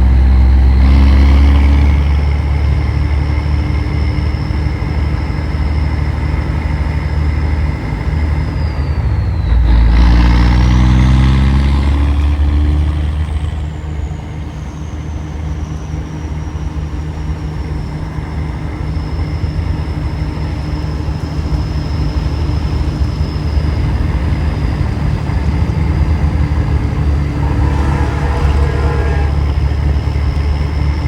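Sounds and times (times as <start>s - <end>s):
truck engine running: 0.0s - 31.0s
high whine falling in pitch: 23.0s - 31.0s.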